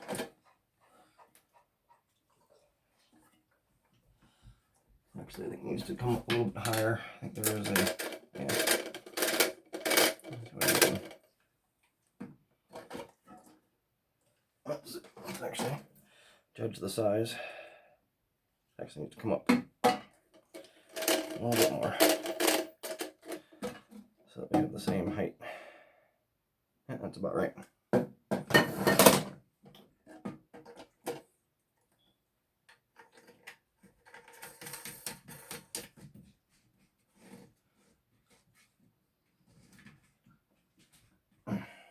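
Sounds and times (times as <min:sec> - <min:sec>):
plastic parts clicking and rattling: 0:06.1 - 0:11.3, 0:20.3 - 0:24.0, 0:32.7 - 0:36.0.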